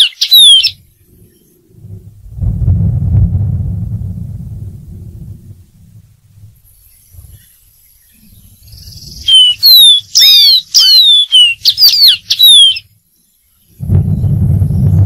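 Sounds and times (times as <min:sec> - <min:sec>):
bird whistling downward notes: 0:00.0 - 0:01.5, 0:08.2 - 0:12.9.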